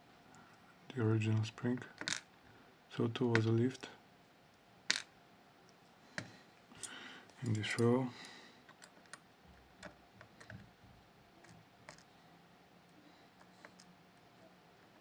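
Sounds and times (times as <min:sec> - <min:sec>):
small lock parts clicking: 0:06.8 - 0:07.9, 0:08.7 - 0:09.2, 0:11.4 - 0:12.1.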